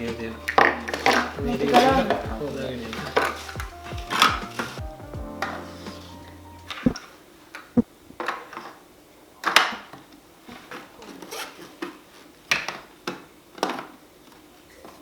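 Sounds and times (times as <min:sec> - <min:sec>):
plastic parts clicking and clattering: 0:10.6 - 0:15.0.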